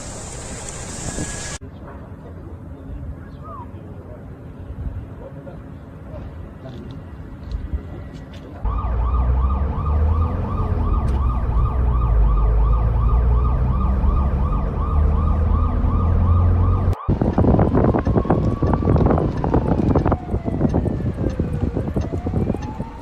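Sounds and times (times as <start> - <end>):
siren yelping: 8.7 - 23.0
heavy low rumble: 13.8 - 23.0.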